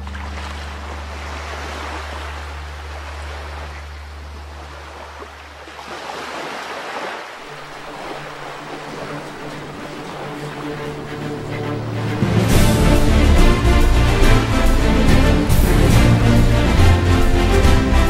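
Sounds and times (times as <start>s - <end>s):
water rushing along boat hull: 0.0s - 18.0s
low music notes: 9.0s - 18.0s.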